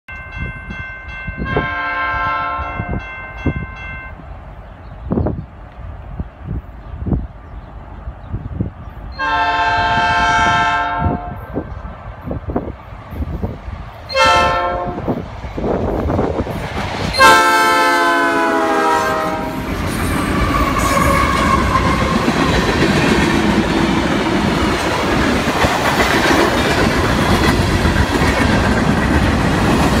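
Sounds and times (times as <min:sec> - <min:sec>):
train rumble and clickety-clack: 0:00.1 - 0:30.0
locomotive horn: 0:01.5 - 0:03.0, 0:09.2 - 0:11.6, 0:14.1 - 0:15.2, 0:17.2 - 0:22.3.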